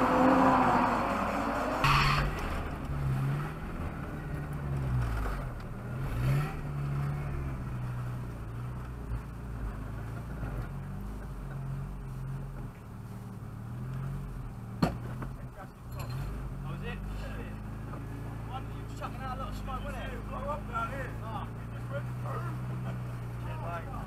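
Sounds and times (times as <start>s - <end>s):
car engine at low revs: 0.0s - 24.0s
sharp knock: 1.8s - 2.8s.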